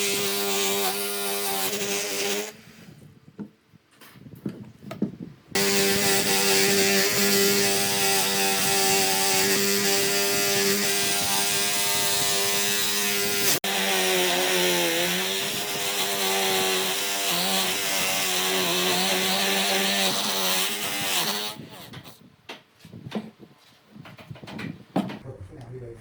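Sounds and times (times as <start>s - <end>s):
power saw cutting wood: 0.0s - 2.6s, 5.6s - 22.0s.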